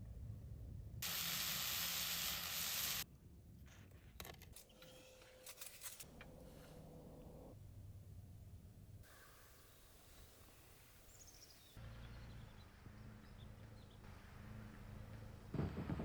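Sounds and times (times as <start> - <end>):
food sizzling in a hot pan: 1.0 - 3.0.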